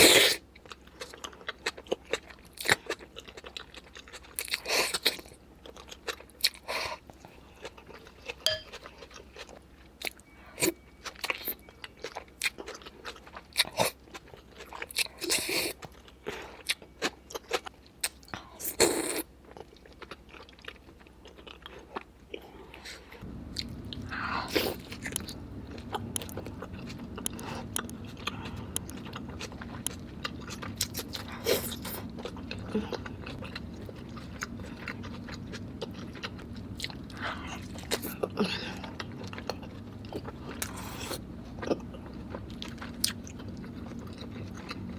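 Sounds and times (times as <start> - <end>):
chewing: 0.0 - 44.9
steady low hum: 5.2 - 11.9, 21.8 - 44.9
crab shell cracking: 28.7 - 29.0.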